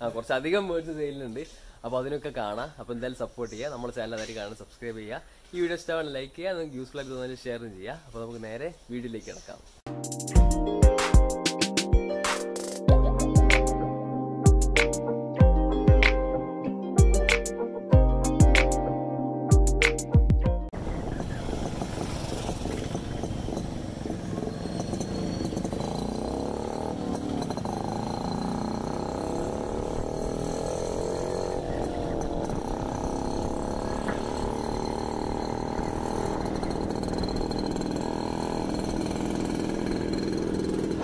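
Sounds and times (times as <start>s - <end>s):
road noise: 20.7s - 41.0s
vehicle engine running: 20.7s - 41.0s.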